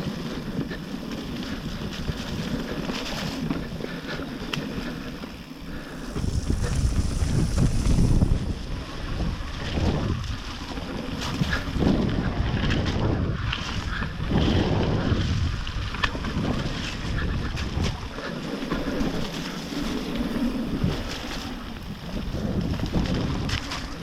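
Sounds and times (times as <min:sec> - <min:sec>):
wind buffeting microphone: 0:00.0 - 0:24.0
bike knocks and rattles: 0:06.0 - 0:08.6.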